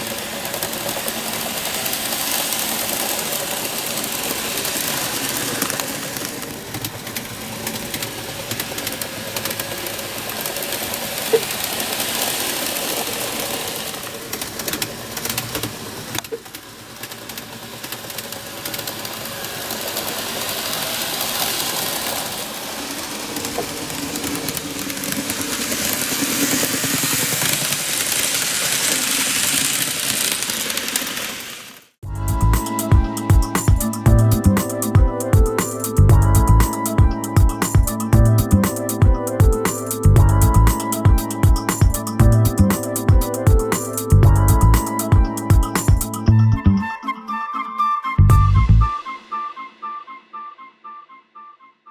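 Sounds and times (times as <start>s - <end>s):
model train motor whirring: 0.0s - 32.0s.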